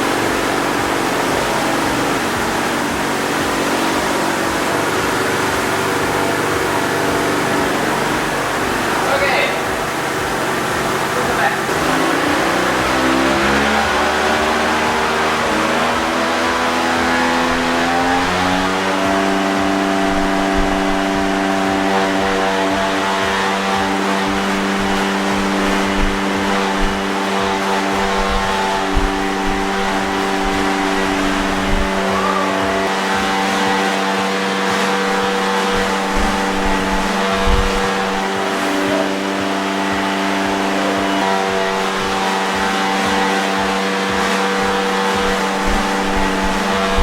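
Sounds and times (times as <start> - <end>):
low rumbling: 0.0 - 33.2, 35.0 - 42.3, 44.6 - 47.0
drone propellers whining: 0.0 - 47.0
thumps: 13.2 - 33.3, 34.9 - 38.4, 44.4 - 47.0.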